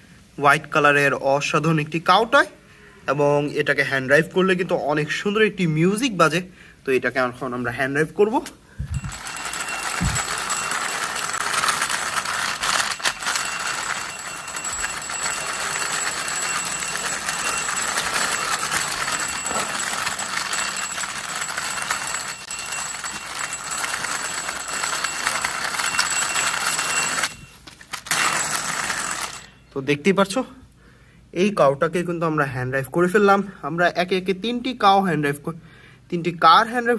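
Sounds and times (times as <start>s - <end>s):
toy beeping melody: 8.9s - 29.6s.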